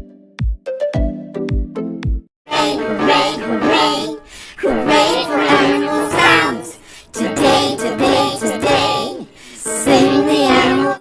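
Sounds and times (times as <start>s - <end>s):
pitch-shifted layered singing voices: 2.5s - 11.0s.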